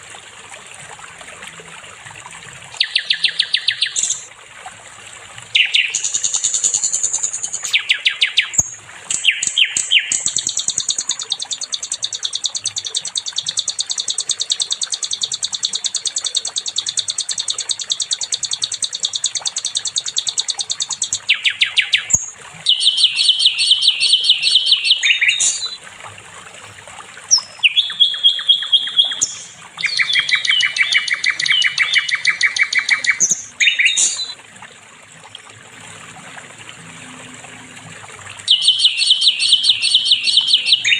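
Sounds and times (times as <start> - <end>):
flycatcher singing: 2.8 - 4.3, 5.6 - 25.8, 27.3 - 34.4, 38.5 - 40.9.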